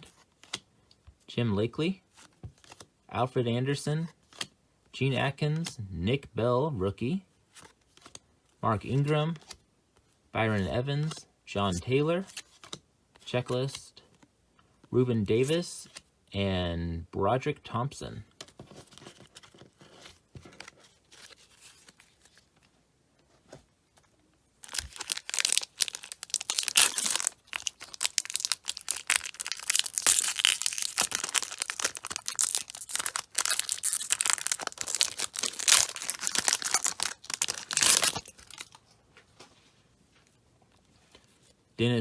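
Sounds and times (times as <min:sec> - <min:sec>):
wrapper tearing and crinkling: 0:24.6 - 0:38.8.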